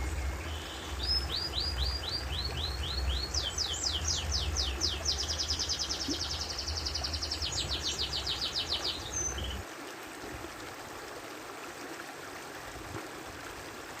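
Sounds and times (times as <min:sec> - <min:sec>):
low rumble: 0:00.0 - 0:05.6
steady background hiss: 0:00.0 - 0:12.0.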